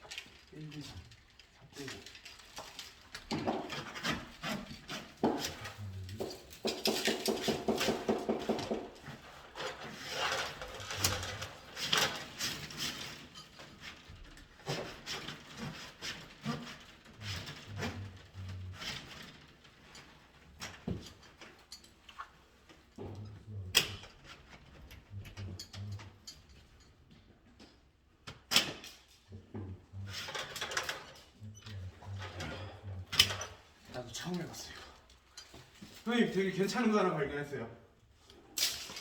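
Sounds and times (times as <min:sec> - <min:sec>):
hand tools rubbing and scraping: 0:03.3 - 0:19.2.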